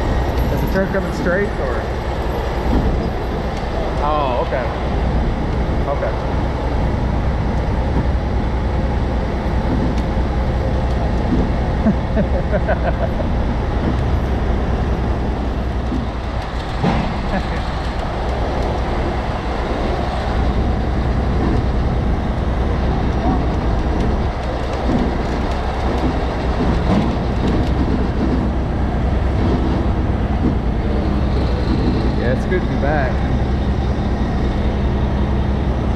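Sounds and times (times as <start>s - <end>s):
diesel engine running under load: 0.0s - 35.9s.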